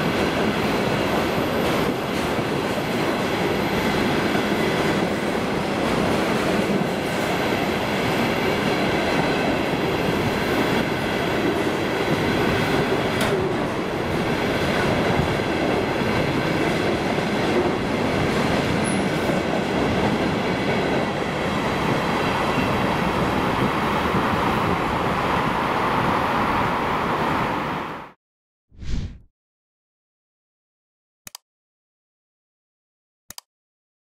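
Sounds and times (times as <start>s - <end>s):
click: 33.3s - 33.5s.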